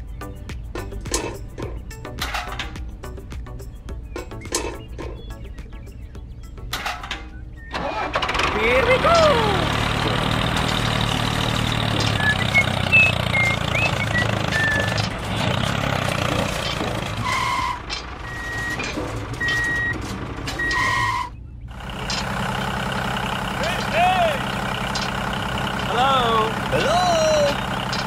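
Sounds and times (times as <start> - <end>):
vehicle engine running: 0.0 - 28.0
reversing alarm beeping: 12.2 - 15.1, 17.2 - 21.4.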